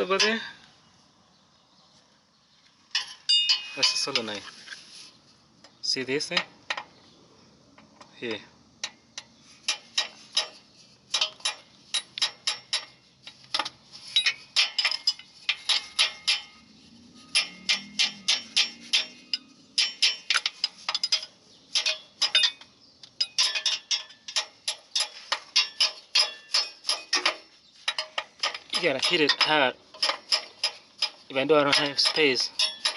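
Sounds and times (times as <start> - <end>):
sharp metal-on-metal taps: 2.9 - 4.3, 8.8 - 16.6, 17.3 - 32.9.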